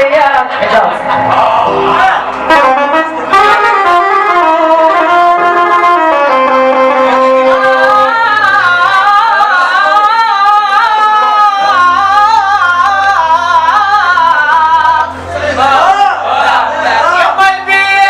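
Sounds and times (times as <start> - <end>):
held accompaniment note: 1.6 - 9.7
man singing melismatic vocal line: 6.1 - 18.0.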